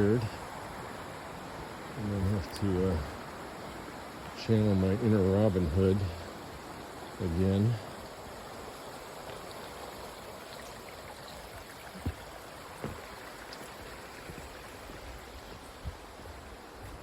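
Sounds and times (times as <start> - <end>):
river running over rocks: 0.0 - 17.0
soft low thumps: 15.4 - 17.0.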